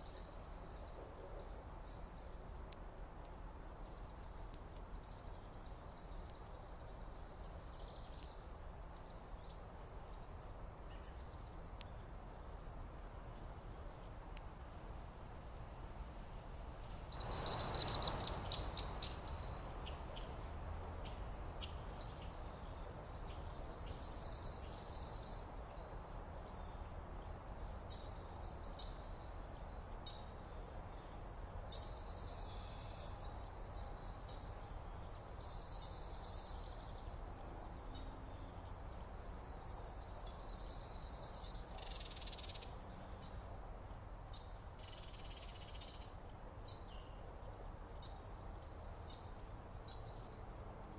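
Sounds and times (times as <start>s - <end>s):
low outdoor hiss: 0.0s - 50.9s
small bird chattering call: 17.1s - 19.2s
faint high bird chirps: 17.1s - 20.3s.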